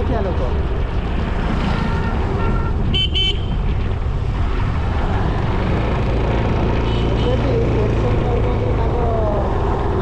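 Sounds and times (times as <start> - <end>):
low road rumble: 0.0 - 10.0
vehicle horn beeping: 1.7 - 3.6.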